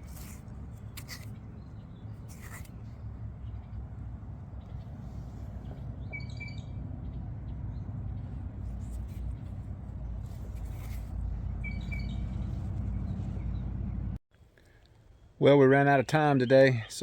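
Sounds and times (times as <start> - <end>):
steady low rumble: 0.0 - 14.2
bird chirping: 5.6 - 8.8, 10.9 - 14.0.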